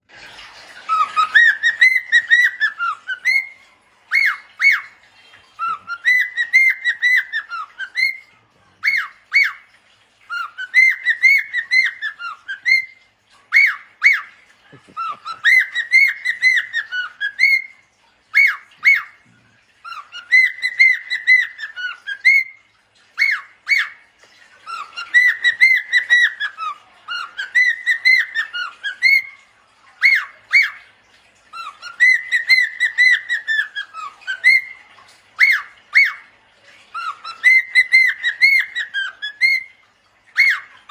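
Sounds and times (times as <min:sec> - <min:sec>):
parrot whistling: 0:00.9 - 0:05.0, 0:05.6 - 0:09.6, 0:10.3 - 0:17.7, 0:19.9 - 0:22.6, 0:24.7 - 0:29.3, 0:31.6 - 0:34.8, 0:37.0 - 0:39.7, 0:40.3 - 0:40.9
parrot sharp calls: 0:10.3 - 0:19.2, 0:36.9 - 0:40.9.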